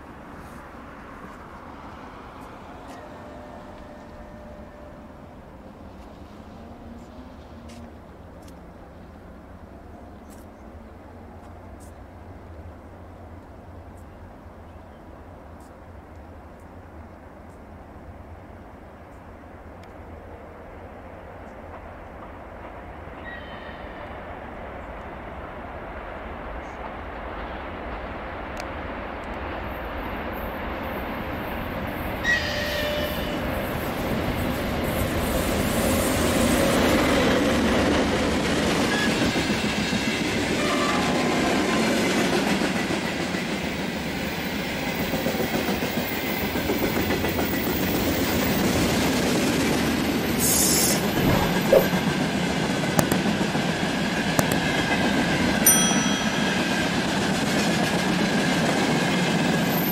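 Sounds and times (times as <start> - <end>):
high wheel squeals: 32.2 - 33.5, 50.4 - 52.0
train wheels clattering: 32.4 - 59.9.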